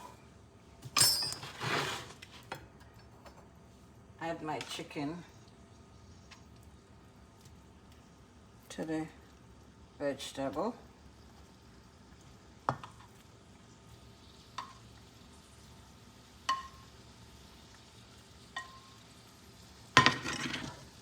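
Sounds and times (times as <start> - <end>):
faint sizzling: 0.0 - 21.0
utensil knocking frying pan: 16.4 - 16.9, 20.0 - 20.8.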